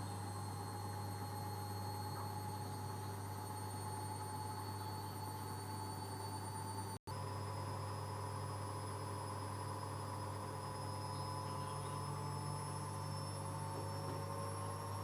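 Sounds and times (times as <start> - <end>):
washing machine spinning: 7.1 - 15.0.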